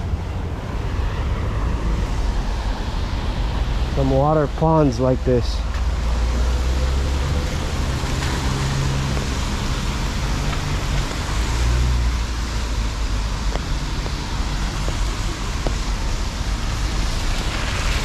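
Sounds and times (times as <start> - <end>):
cars passing on wet road: 0.0 - 18.0
steady traffic noise: 0.0 - 18.0.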